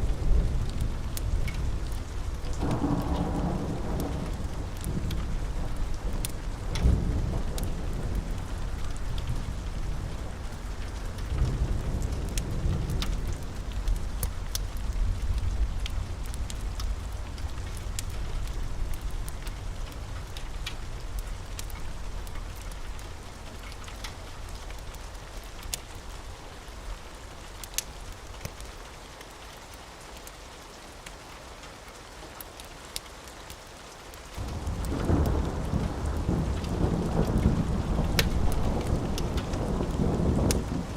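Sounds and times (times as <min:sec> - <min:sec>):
rolling thunder: 0:00.0 - 0:19.4, 0:34.4 - 0:40.9
steady rain: 0:00.0 - 0:40.9.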